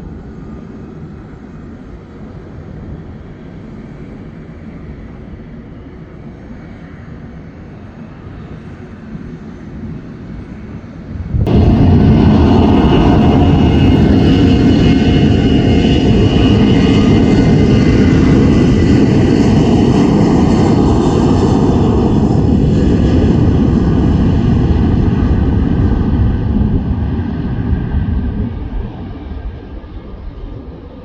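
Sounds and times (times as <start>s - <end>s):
jet engines at takeoff power: 0.0s - 31.0s
whining engine tones: 11.5s - 26.1s.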